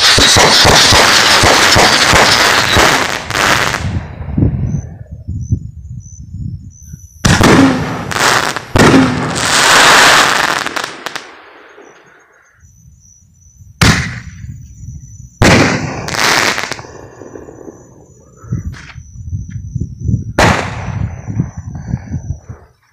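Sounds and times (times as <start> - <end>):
fireworks hissing and crackling: 0.0 - 4.1, 7.2 - 12.4, 15.4 - 18.9
firework booms: 0.0 - 5.0, 7.2 - 12.1, 13.8 - 18.8, 20.2 - 22.5.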